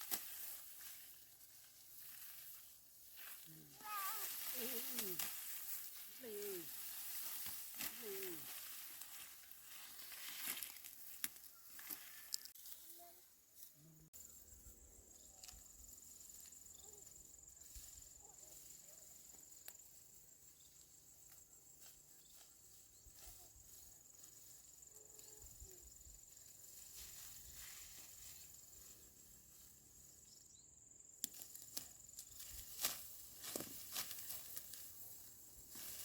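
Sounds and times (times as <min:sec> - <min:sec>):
insects trilling: 0:00.0 - 0:12.9, 0:14.0 - 0:36.0
faint rustles and clicks: 0:00.0 - 0:13.8, 0:31.3 - 0:36.0.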